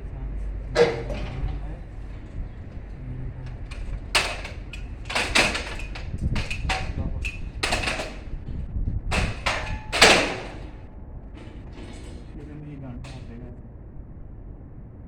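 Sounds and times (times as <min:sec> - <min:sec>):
hard objects knocking and clanking: 0:00.8 - 0:12.4.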